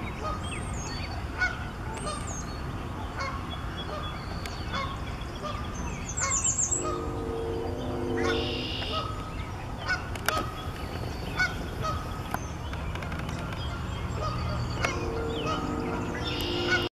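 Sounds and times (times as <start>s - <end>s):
small birds chirping: 0.0s - 16.9s
bird honking call: 3.2s - 12.3s, 13.4s - 16.9s
low steady rumble: 4.8s - 16.9s
high bird trill: 6.0s - 10.7s, 13.4s - 16.9s.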